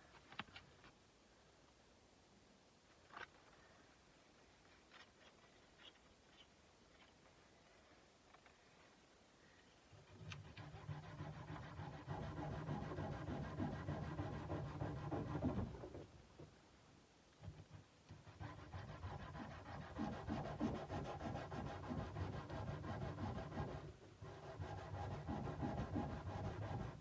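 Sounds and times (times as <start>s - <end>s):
sandpaper rubbing on steel blade: 10.5s - 15.6s, 18.2s - 27.0s.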